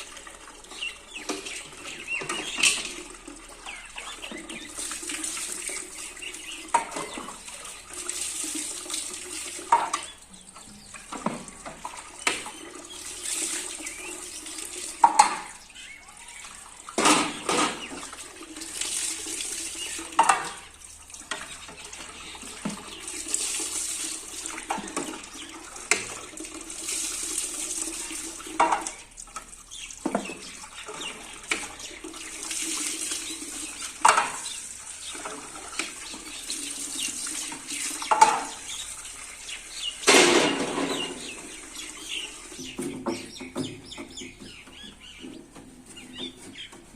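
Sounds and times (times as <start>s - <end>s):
tap water running: 0.0s - 46.9s
knocks and clatter of trays: 1.2s - 3.1s, 10.9s - 12.5s, 15.0s - 15.6s, 17.0s - 18.1s, 40.0s - 41.5s.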